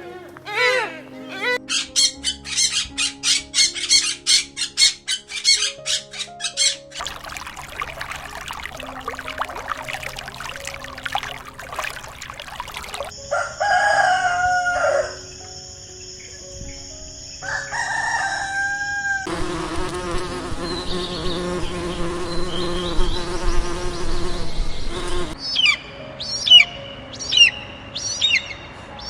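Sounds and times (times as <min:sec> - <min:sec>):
insects buzzing: 0:07.0 - 0:13.2, 0:15.2 - 0:25.4
rooster crowing: 0:13.2 - 0:15.2, 0:17.4 - 0:19.3.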